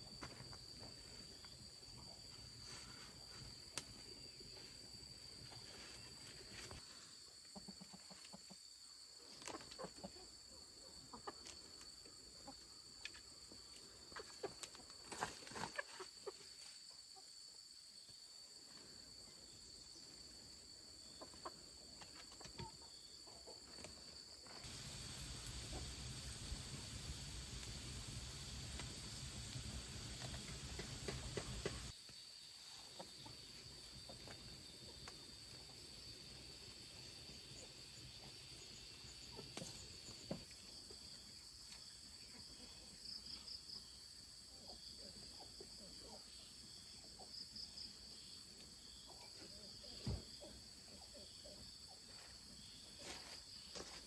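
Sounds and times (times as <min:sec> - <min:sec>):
chickens clucking: 0:07.4 - 0:08.6, 0:09.3 - 0:17.3, 0:21.0 - 0:23.5, 0:24.6 - 0:31.9, 0:38.2 - 0:41.1
hiss: 0:24.6 - 0:32.0
high insect drone: 0:24.6 - 0:32.7.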